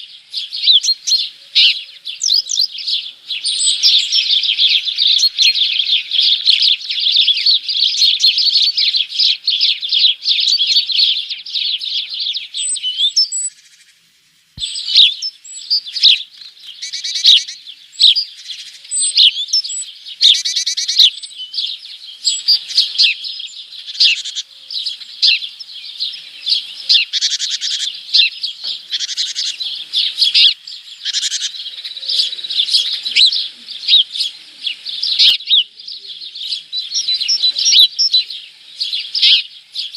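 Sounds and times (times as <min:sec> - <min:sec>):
bird trills: 0:00.0 - 0:14.0, 0:14.6 - 0:39.9
songbirds chirping: 0:00.0 - 0:39.9.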